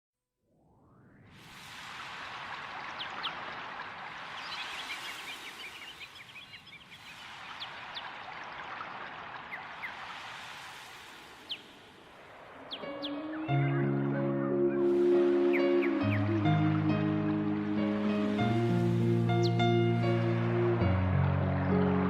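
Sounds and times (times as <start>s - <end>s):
stream water rushing: 1.8s - 22.0s
small birds chirping: 2.8s - 10.1s, 11.3s - 17.4s.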